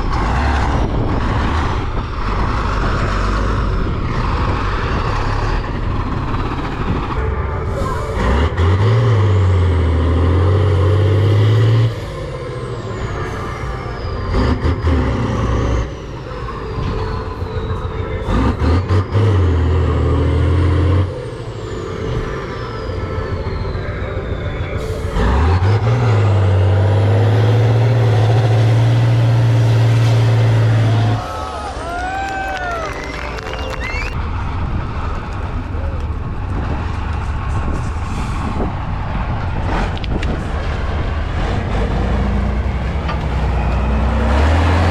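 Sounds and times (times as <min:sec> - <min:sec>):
loud low drone: 0:00.0 - 0:44.9
truck engine running: 0:00.0 - 0:44.9.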